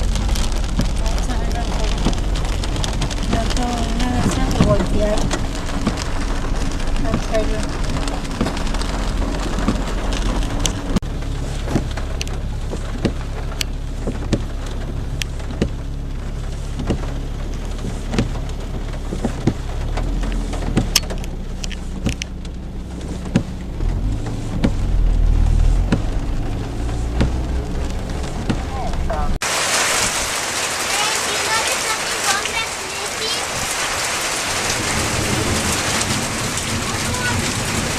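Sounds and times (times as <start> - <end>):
scattered crackles and taps: 0.0 - 15.8, 16.8 - 25.2, 25.8 - 29.2
low rumble: 0.0 - 30.4, 33.5 - 37.9.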